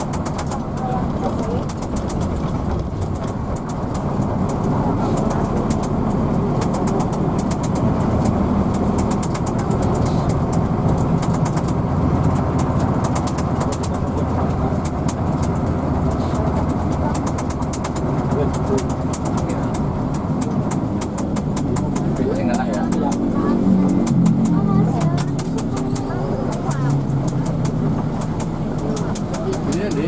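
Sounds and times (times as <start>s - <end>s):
bus engine rumble: 0.0s - 30.0s
light rattling ticks: 0.0s - 30.0s.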